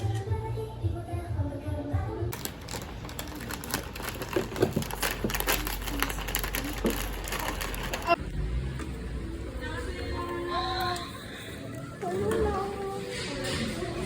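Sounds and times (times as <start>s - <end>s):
background music: 8.4s - 14.0s.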